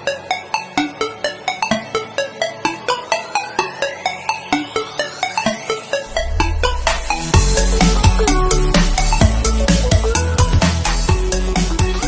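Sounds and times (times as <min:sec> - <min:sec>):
electronic music with steady beat: 0:00.0 - 0:12.0
heavy bass: 0:06.1 - 0:12.0.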